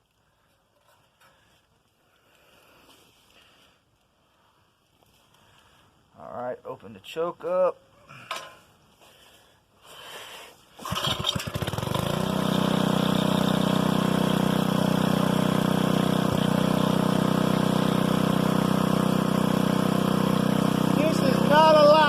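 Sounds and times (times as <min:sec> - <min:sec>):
small engine starting and running: 0:10.8 - 0:22.0.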